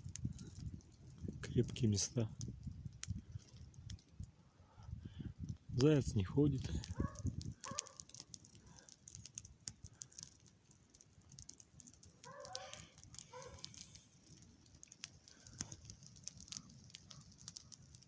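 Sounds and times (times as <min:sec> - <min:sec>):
faint clicking: 0:06.6 - 0:18.0
distant hound baying: 0:07.0 - 0:08.0, 0:12.2 - 0:13.7.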